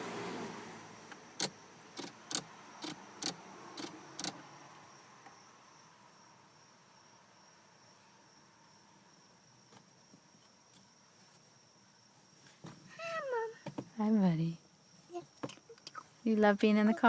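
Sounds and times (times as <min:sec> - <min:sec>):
crickets droning: 0:00.1 - 0:17.0
sharp irregular clicks: 0:01.4 - 0:04.4.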